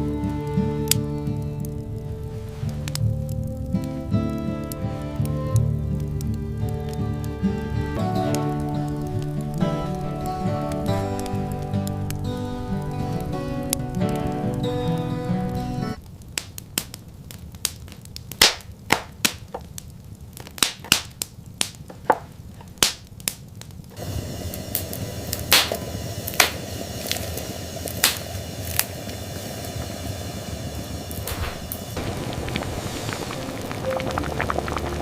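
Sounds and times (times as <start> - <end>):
music: 0.0 - 16.0, 33.1 - 35.0
sharp cracks and snaps: 0.8 - 24.0, 24.8 - 28.9
steady rushing noise: 24.0 - 35.0.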